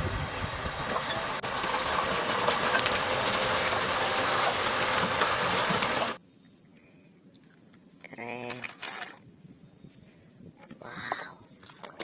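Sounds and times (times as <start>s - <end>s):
water spraying over plastic toys: 0.0s - 6.2s.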